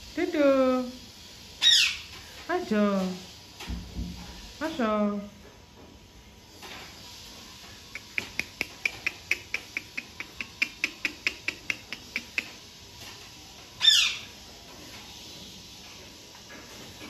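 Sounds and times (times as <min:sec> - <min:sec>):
bird squawk: 0:01.6 - 0:02.1, 0:13.8 - 0:14.3.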